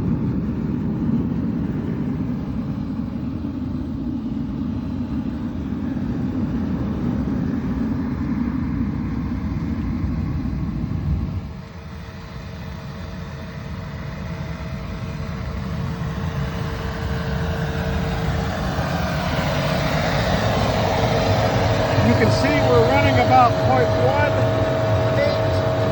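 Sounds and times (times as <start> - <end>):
furnace burning rumbling rush: 16.0 - 25.9
faint steady tone: 21.5 - 25.9.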